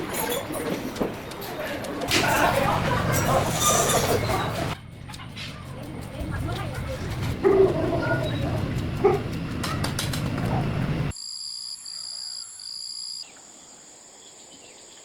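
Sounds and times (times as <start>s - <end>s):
market noise: 0.0s - 11.1s
dog barking: 7.4s - 8.4s, 9.0s - 10.8s.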